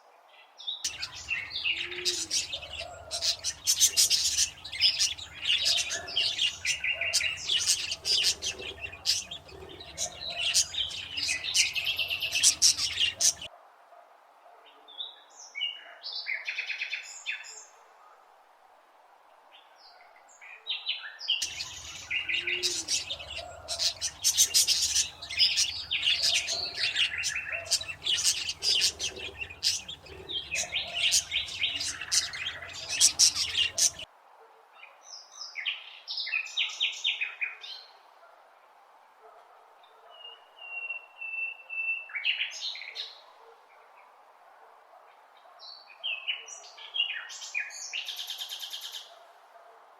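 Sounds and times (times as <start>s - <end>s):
birds chirping: 0.9s - 13.5s, 21.4s - 34.1s.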